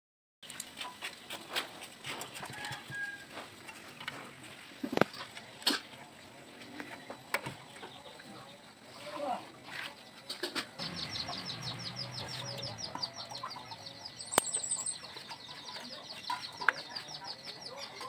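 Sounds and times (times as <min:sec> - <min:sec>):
chickens clucking: 0:00.5 - 0:18.0.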